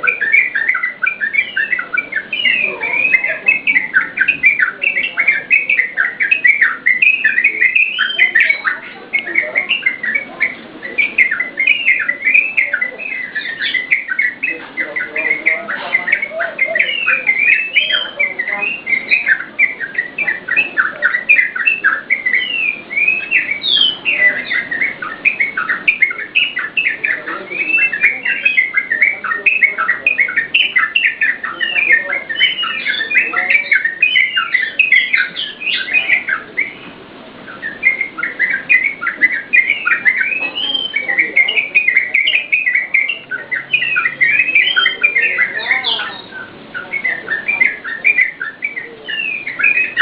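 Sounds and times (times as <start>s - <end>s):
bulbul singing bubbling chirps: 0.0s - 50.0s.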